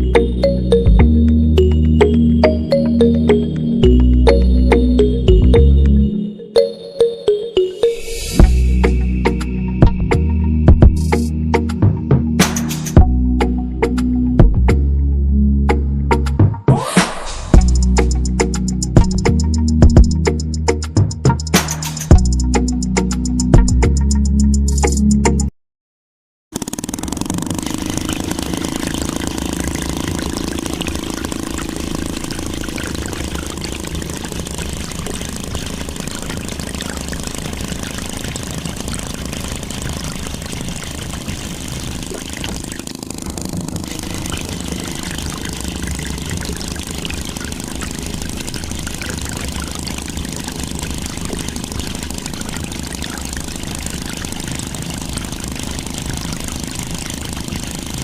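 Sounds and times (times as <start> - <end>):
small electric water pump motor: 26.6 - 58.0.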